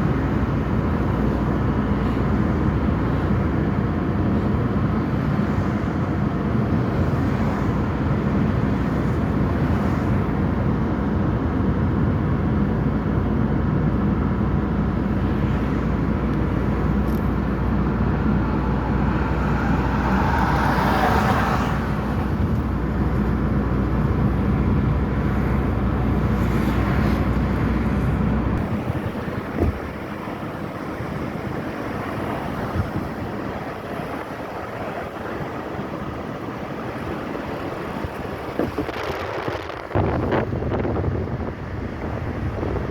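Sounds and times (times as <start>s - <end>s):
traffic on wet roads: 0.0s - 42.9s
vehicle swishing past: 16.5s - 22.8s.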